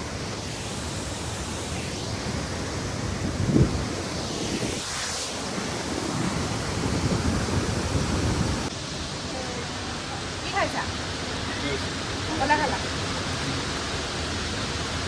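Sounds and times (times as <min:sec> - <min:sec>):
waterfall roar: 0:00.0 - 0:15.0
wind buffeting microphone: 0:02.1 - 0:08.7.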